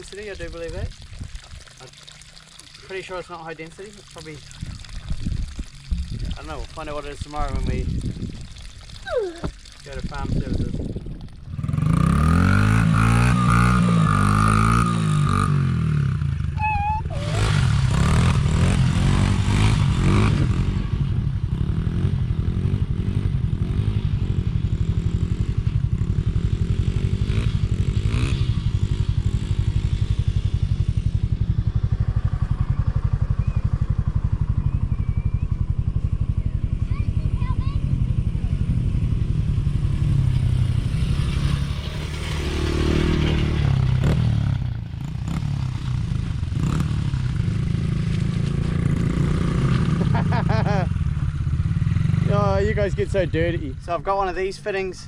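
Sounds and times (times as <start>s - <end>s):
small vehicle engine revving: 11.5s - 52.8s.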